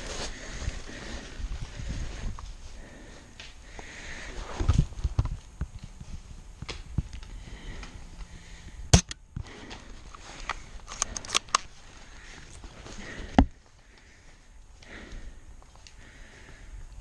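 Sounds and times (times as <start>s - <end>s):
airsoft gun shots: 9.0s - 9.3s.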